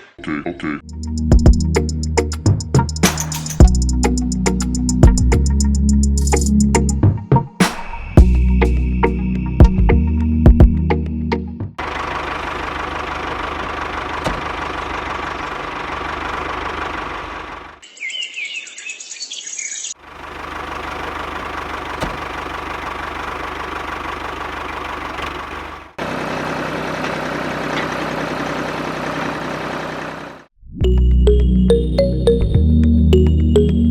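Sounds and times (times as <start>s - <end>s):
birds chirping: 17.8s - 23.3s.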